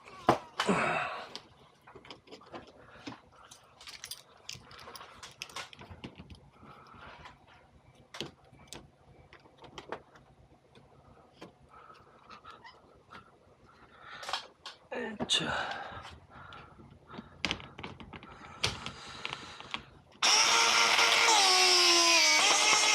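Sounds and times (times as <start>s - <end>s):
small metallic clinks: 3.4s - 6.4s.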